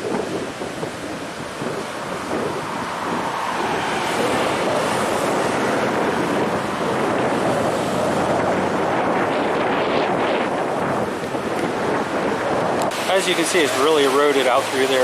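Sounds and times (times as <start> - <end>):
ocean surf washing onto beach: 0.0 - 15.0
wind on microphone: 0.0 - 15.0.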